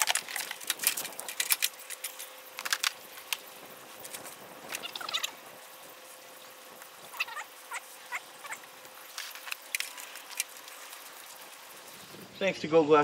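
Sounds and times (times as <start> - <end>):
faint steady hiss: 0.0 - 13.0
small birds chirping: 4.8 - 5.4, 7.0 - 8.8.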